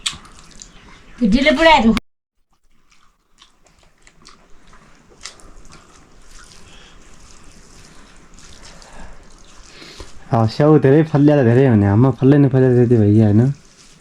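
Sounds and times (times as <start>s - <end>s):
person chewing food: 0.0s - 1.2s, 2.4s - 10.3s, 13.5s - 14.0s.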